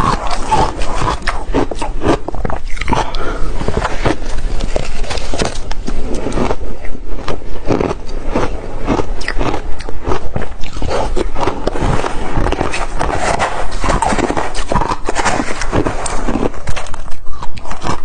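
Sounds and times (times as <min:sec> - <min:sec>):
ice being chewed: 0:00.0 - 0:18.0.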